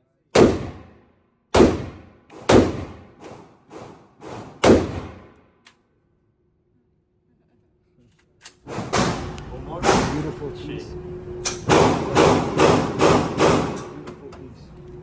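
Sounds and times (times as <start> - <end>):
gunshots echoing: 0.4 - 5.4, 11.7 - 13.8.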